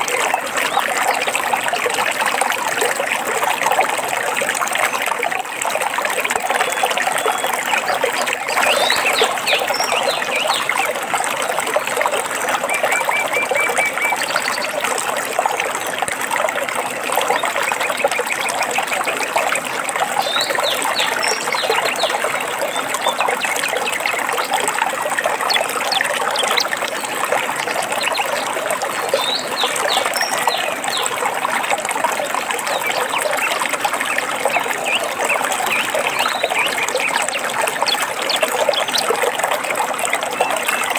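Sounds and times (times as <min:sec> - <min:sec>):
stream trickling and splashing: 0:00.0 - 0:40.9
birds chirping: 0:06.6 - 0:11.1, 0:12.2 - 0:14.8, 0:20.2 - 0:24.6, 0:25.2 - 0:26.8, 0:32.7 - 0:39.2.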